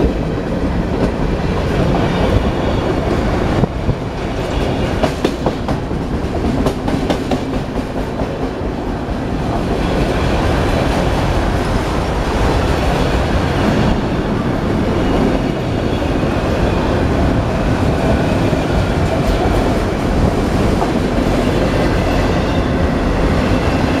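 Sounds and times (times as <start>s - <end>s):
freight train rumbling past: 0.0s - 24.0s.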